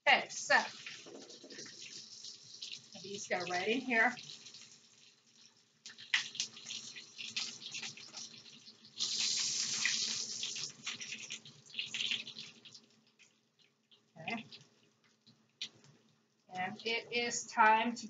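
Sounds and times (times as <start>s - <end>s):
fish cakes sizzling in oil: 0.4s - 15.7s.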